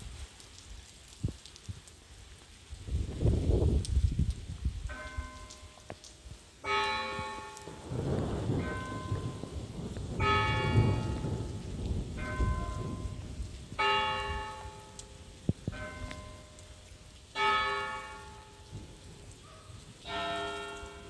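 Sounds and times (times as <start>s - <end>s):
steady rain: 0.0s - 21.0s
church bells ringing: 4.9s - 5.9s, 6.6s - 16.7s, 17.4s - 21.0s.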